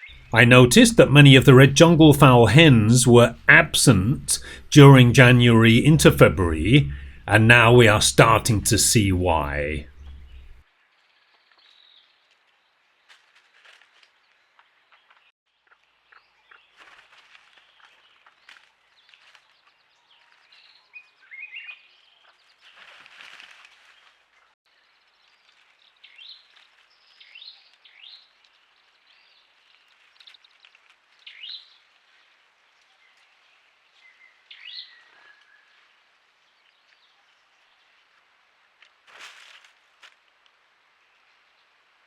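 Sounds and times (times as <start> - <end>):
rustling noise: 22.6 - 24.2, 39.0 - 40.3.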